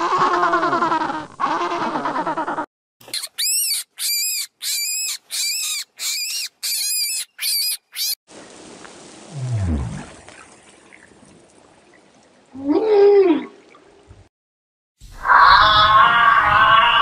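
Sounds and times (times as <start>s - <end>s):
rabbit squeaking: 3.0s - 8.2s.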